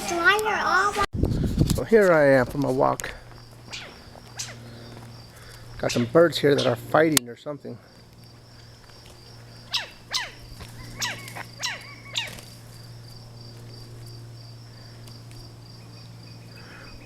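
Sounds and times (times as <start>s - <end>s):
pulsing insect chirr: 3.2s - 7.0s, 7.9s - 17.0s
sharp downward-sweeping bird calls: 3.7s - 5.0s, 9.6s - 12.5s.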